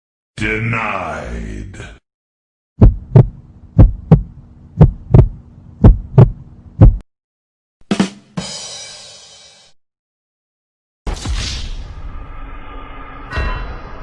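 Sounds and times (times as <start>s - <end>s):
heartbeat thumps: 2.8s - 7.0s.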